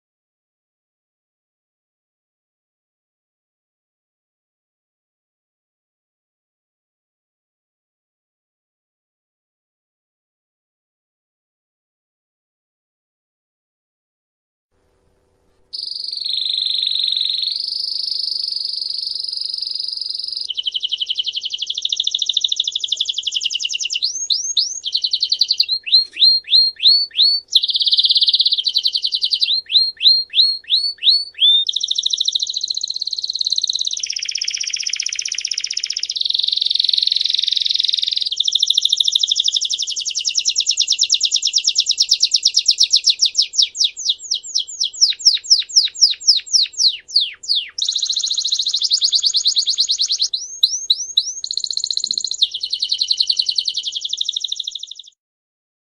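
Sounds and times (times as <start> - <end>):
songbird singing rapid trills: 15.8 - 55.2.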